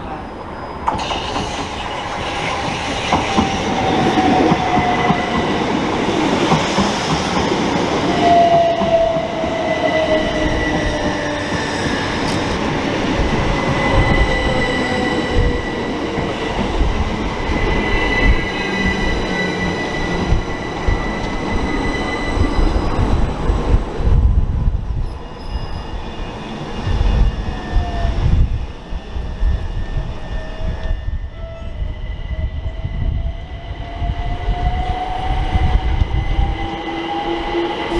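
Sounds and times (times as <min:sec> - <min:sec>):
rumble of wheels on rails: 0:00.0 - 0:37.9.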